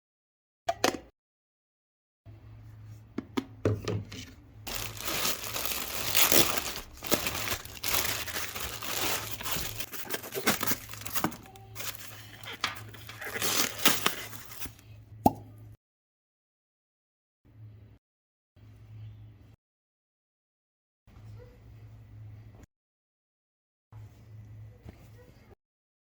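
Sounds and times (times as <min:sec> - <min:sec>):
plastic packaging crinkling: 0:04.7 - 0:14.8.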